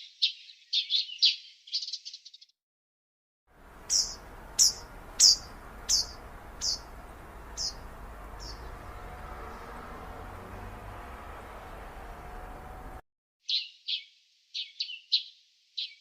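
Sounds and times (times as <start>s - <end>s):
songbird chip calls: 0.0s - 2.4s, 3.8s - 9.8s, 13.4s - 16.0s
outdoor background hiss: 3.5s - 13.0s.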